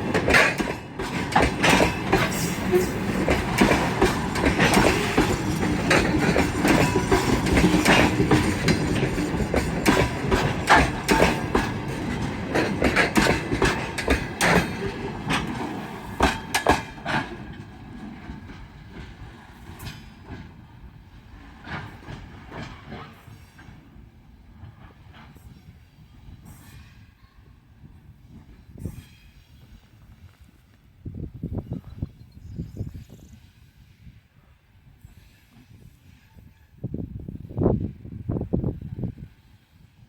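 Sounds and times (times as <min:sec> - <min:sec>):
train wheels clattering over rail joints: 0:00.0 - 0:27.0.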